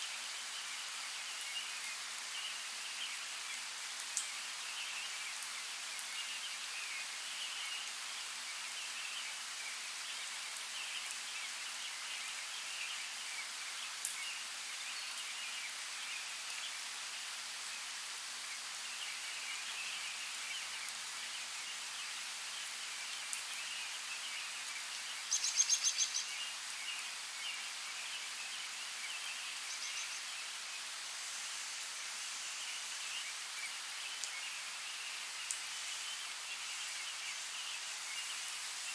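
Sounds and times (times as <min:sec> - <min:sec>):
rain hiss: 0:00.0 - 0:38.9.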